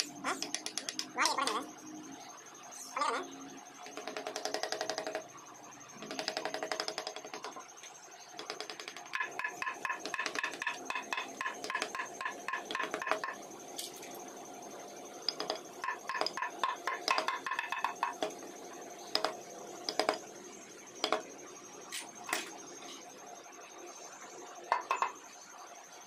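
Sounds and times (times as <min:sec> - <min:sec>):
carving tools tapping and clinking: 0:00.0 - 0:01.7, 0:03.9 - 0:05.3, 0:06.0 - 0:07.6, 0:08.4 - 0:14.0, 0:15.2 - 0:18.5, 0:19.1 - 0:20.3, 0:21.0 - 0:21.3, 0:24.7 - 0:25.2.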